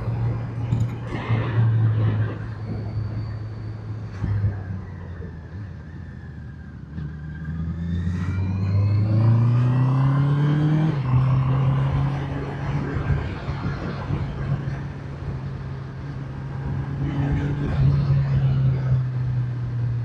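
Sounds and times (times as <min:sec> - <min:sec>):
motorcycle engine revving: 0:07.0 - 0:13.5.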